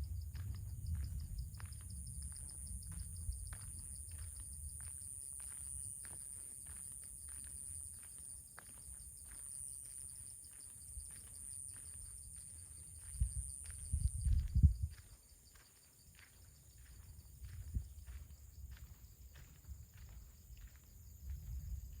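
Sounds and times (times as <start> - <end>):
wind buffeting microphone: 0.0 - 5.1, 12.9 - 15.2, 17.4 - 22.0
soft footsteps on path: 0.0 - 22.0.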